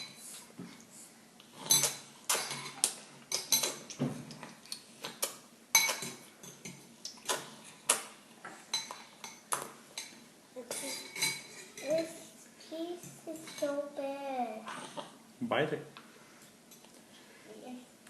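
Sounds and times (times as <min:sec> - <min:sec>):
cutlery clinking against dishes: 0:01.6 - 0:04.0, 0:04.7 - 0:06.8, 0:08.7 - 0:12.1.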